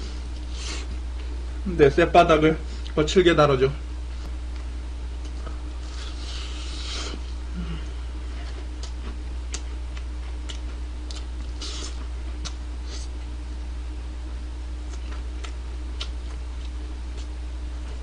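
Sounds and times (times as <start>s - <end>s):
low electrical hum: 0.0s - 18.0s
person chewing: 5.2s - 13.3s, 14.8s - 17.4s.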